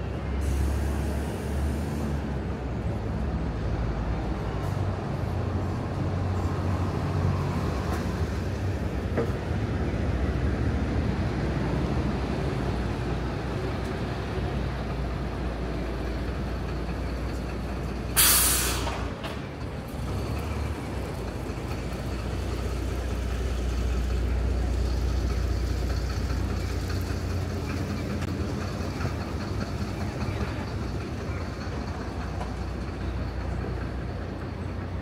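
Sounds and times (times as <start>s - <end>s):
heavy vehicle engine running: 0.0s - 35.0s
street traffic: 0.0s - 35.0s
air brakes hissing: 0.3s - 2.3s, 18.1s - 19.1s.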